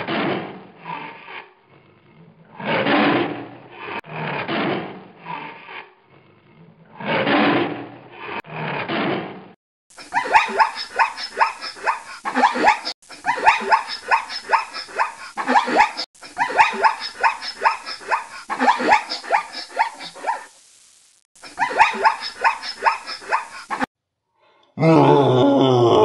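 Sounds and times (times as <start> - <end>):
zebra yelping barks: 10.1 - 20.5, 21.4 - 23.9.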